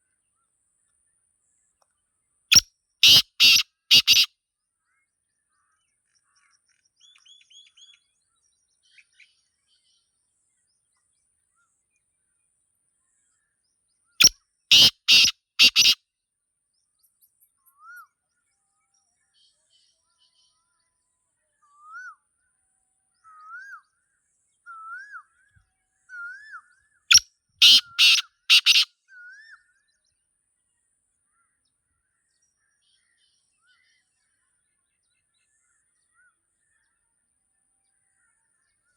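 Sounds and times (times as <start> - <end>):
bird harsh grating calls: 2.5 - 4.3, 14.7 - 16.0, 27.1 - 28.9
small birds chirping: 2.5 - 4.3, 14.2 - 16.0, 27.1 - 28.9.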